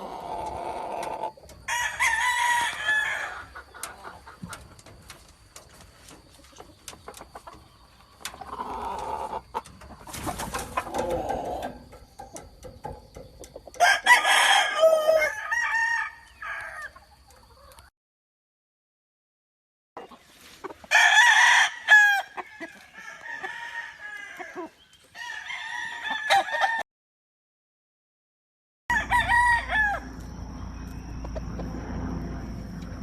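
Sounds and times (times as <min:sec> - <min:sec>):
roosters crowing: 0:00.0 - 0:04.5, 0:07.6 - 0:17.7, 0:20.8 - 0:26.8, 0:28.9 - 0:33.0
chickens clucking: 0:00.0 - 0:14.2, 0:16.2 - 0:17.9, 0:20.0 - 0:20.9, 0:24.3 - 0:25.2, 0:30.2 - 0:33.0.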